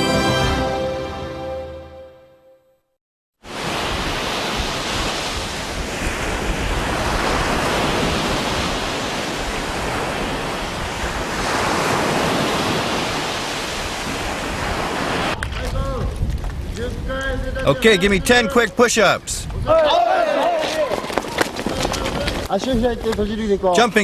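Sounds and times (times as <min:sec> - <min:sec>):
sea surf: 0:03.4 - 0:15.5
wind buffeting microphone: 0:03.7 - 0:20.0, 0:20.7 - 0:23.7.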